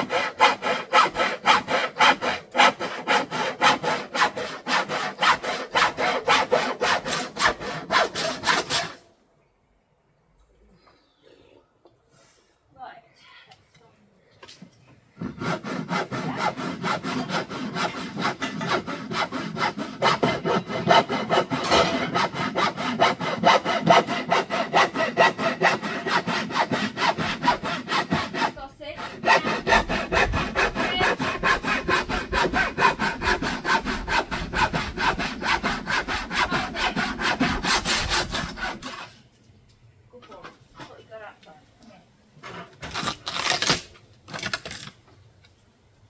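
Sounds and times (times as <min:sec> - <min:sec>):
handsaw cutting wood: 0:00.0 - 0:09.0, 0:15.2 - 0:39.2.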